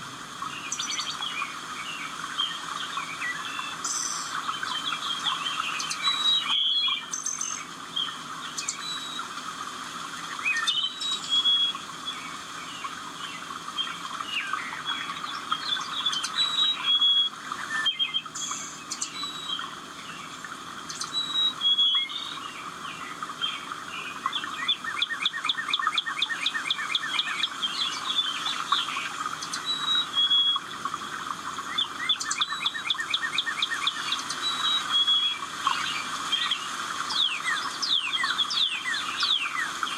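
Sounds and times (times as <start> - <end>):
songbirds singing and chirping: 0.0 - 39.9
bird trill: 8.6 - 9.3, 14.4 - 19.8, 20.9 - 22.5, 24.3 - 30.7, 31.6 - 39.9.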